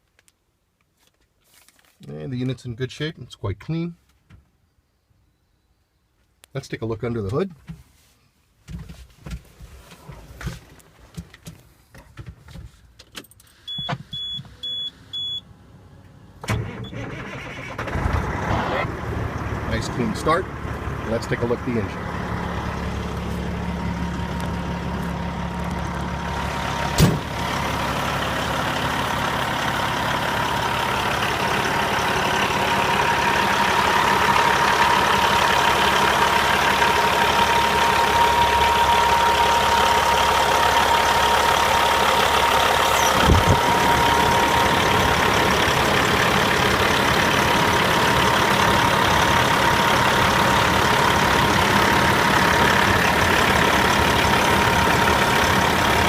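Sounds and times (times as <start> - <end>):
diesel engine idling: 13.8 - 56.0
sharp thump: 27.0 - 27.3.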